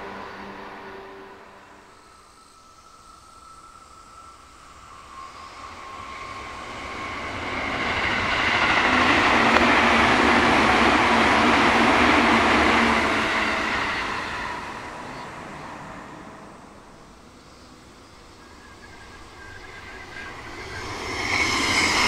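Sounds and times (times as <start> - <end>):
train passing at speed: 0.0 - 22.0.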